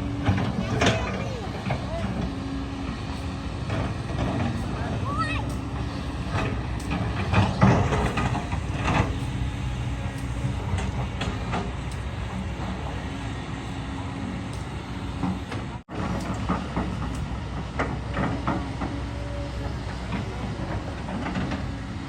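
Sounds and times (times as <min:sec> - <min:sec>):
excavator diesel engine running: 0:00.0 - 0:22.0
metallic clanks and knocks: 0:06.3 - 0:13.0.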